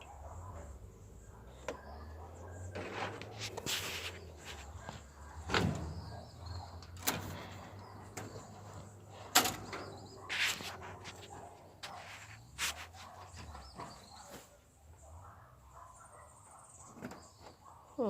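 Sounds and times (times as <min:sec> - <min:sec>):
short scraping rustle: 0:02.7 - 0:05.1, 0:10.1 - 0:14.5
sharp knocks and clatters: 0:05.4 - 0:06.3.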